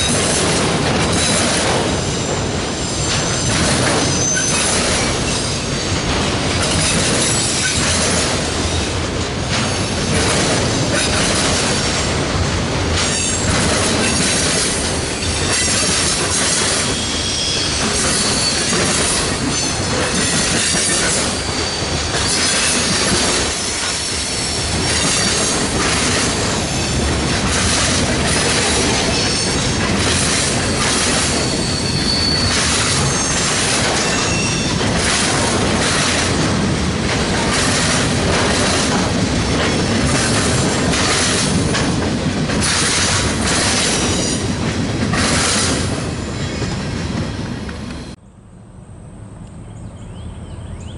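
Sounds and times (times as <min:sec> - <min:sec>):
freight train wheels rumbling: 0:00.0 - 0:50.9
high-pitched wheel squeals: 0:02.1 - 0:05.7, 0:16.8 - 0:20.3, 0:29.0 - 0:29.8, 0:30.6 - 0:34.8.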